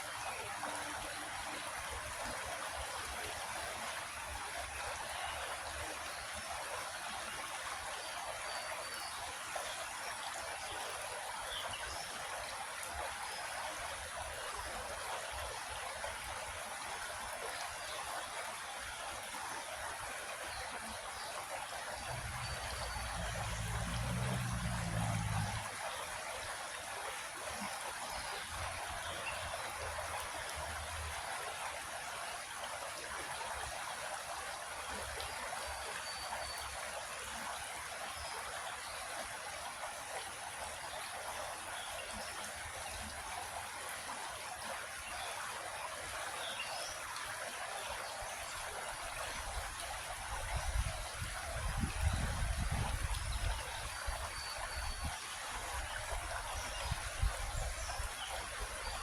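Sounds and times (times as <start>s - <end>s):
creek water trickling: 0.0s - 59.0s.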